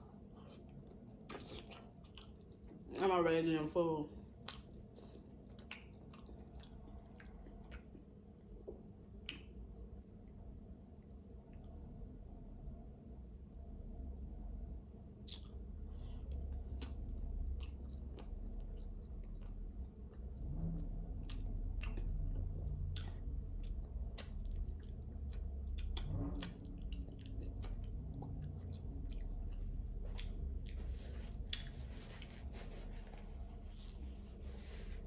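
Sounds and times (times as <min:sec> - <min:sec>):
chewing and biting food: 0:00.5 - 0:02.9, 0:04.4 - 0:09.6, 0:15.2 - 0:32.3
wet squishy mouth sounds: 0:00.8 - 0:02.8, 0:15.2 - 0:15.6, 0:21.1 - 0:31.8.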